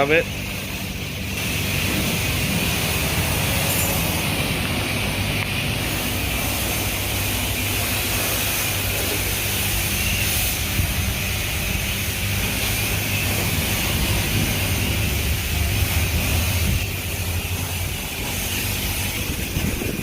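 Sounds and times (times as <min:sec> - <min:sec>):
pressure washer spraying water: 0:00.0 - 0:20.0.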